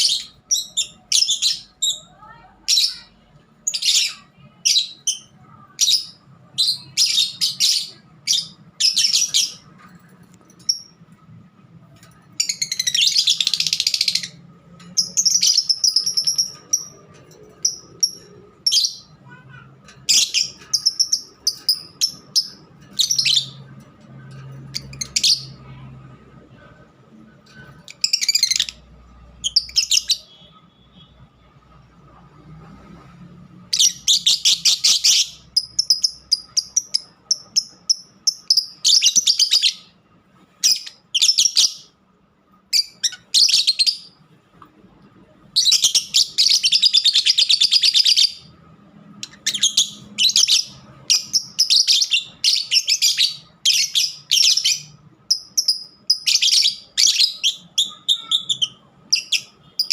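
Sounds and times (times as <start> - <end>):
lovebirds chirping: 0.0 - 11.2, 11.8 - 31.4, 33.6 - 42.0, 42.7 - 44.3, 45.0 - 59.9.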